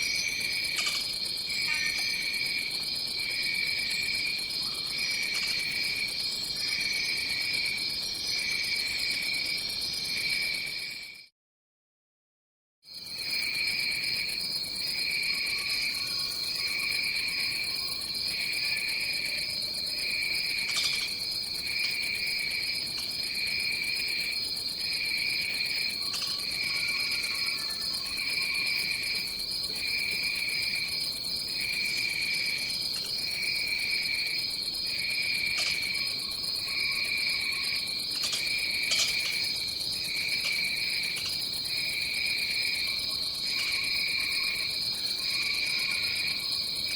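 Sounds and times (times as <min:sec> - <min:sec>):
pulsing insect chirp: 0:00.0 - 0:11.0, 0:13.0 - 0:46.9
shrill insect trill: 0:00.0 - 0:11.0, 0:13.0 - 0:46.9.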